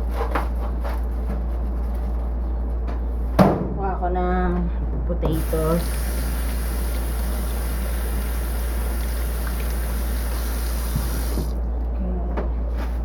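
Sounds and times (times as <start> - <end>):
kitchen tap running: 5.3 - 11.6.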